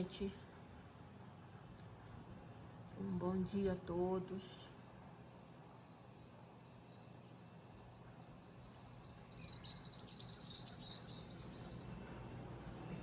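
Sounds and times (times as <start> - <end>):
insects trilling: 3.2 - 13.0
rapid high chirping: 4.5 - 13.0.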